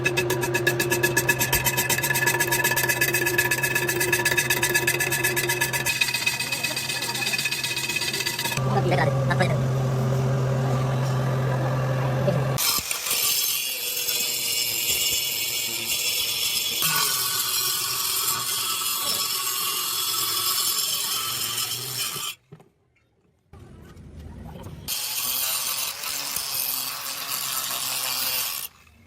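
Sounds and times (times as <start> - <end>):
machine hum: 0.0 - 12.6.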